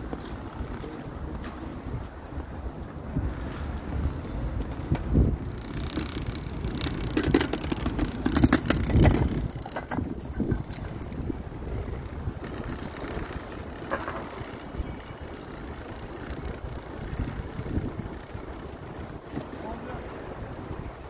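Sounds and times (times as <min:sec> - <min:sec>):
low street rumble: 0:00.0 - 0:21.0
knocks and clatter: 0:04.7 - 0:11.1.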